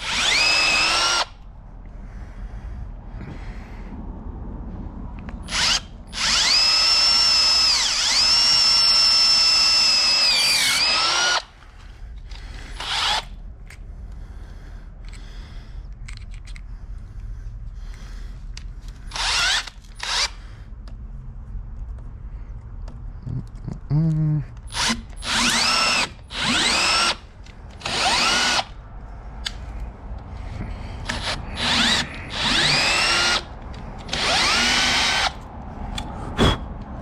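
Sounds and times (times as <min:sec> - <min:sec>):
power drill whirring: 0:00.0 - 0:01.4, 0:05.4 - 0:11.6, 0:12.2 - 0:13.4, 0:19.1 - 0:20.4, 0:24.7 - 0:28.8, 0:31.0 - 0:35.4.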